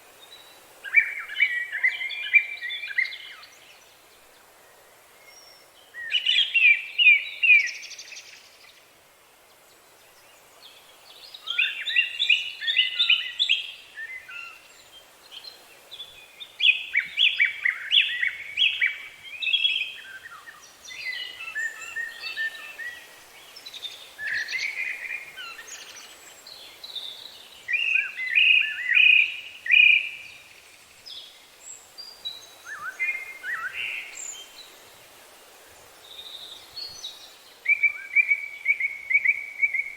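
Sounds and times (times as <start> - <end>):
faint steady hiss: 0.0 - 39.9
songbird singing: 0.0 - 39.9.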